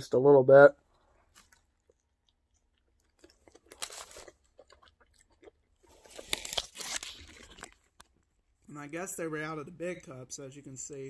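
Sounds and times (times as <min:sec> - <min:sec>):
crunchy wet chewing: 0:00.9 - 0:08.4.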